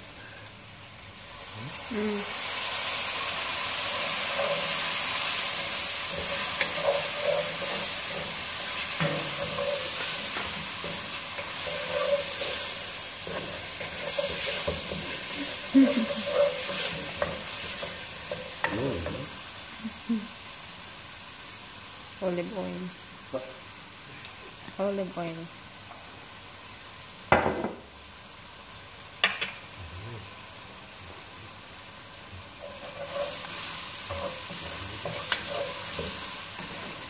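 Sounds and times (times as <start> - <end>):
food sizzling in hot oil: 0.0 - 37.0
wooden spoon scraping a pan: 3.9 - 19.3, 32.6 - 37.0.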